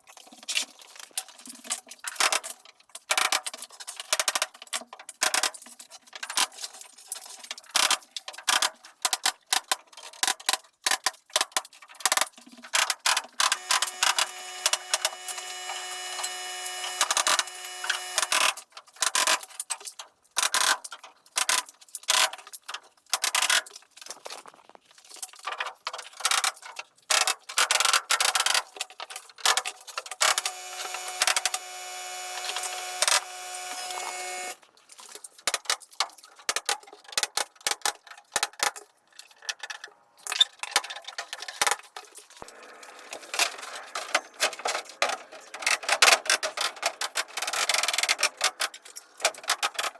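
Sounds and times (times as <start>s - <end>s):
power tool motor running: 13.4s - 18.5s, 30.2s - 34.6s.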